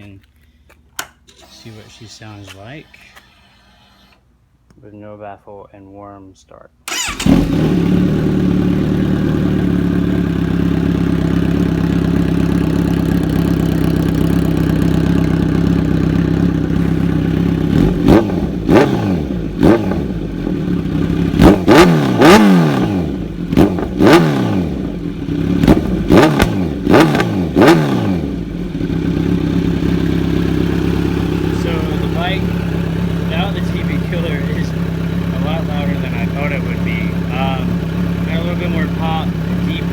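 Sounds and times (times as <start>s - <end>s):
motorcycle engine idling and revving: 6.9s - 39.9s
exhaust pops: 16.5s - 28.8s.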